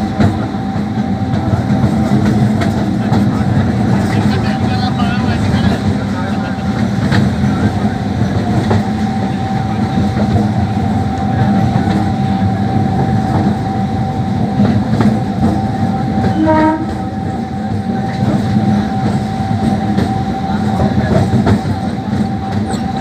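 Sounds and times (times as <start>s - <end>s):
rail-joint clacks: 0.0s - 23.0s
train wheels rumbling on rail: 0.0s - 23.0s
train horn: 16.2s - 17.3s.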